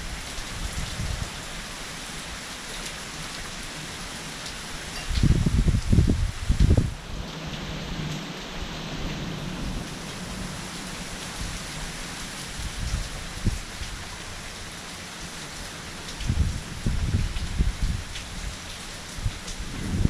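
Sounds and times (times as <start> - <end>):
heavy rain falling: 0.0 - 20.0
thunder rumbling: 19.2 - 20.0.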